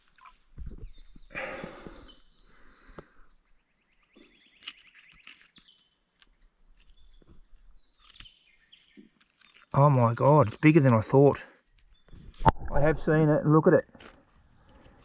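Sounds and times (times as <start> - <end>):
gravel and stones scraping: 4.0 - 13.2.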